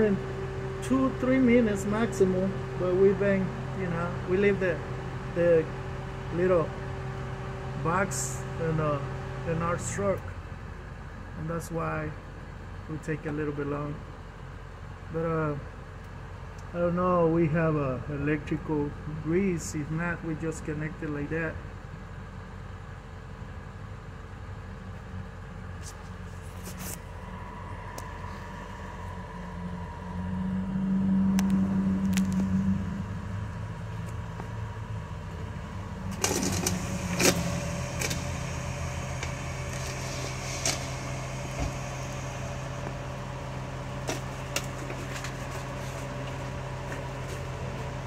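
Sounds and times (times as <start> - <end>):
machine hum: 0.0 - 9.9, 21.9 - 48.0.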